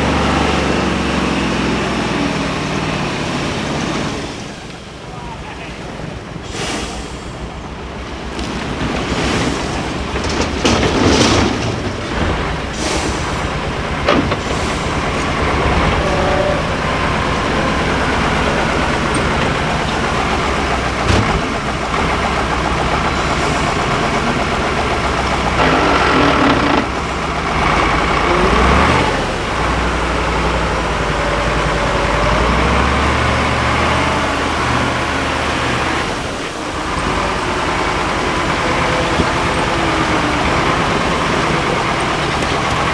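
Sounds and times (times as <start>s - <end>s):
truck diesel engine under load: 0.0s - 42.9s
sharp knocks: 20.9s - 21.8s.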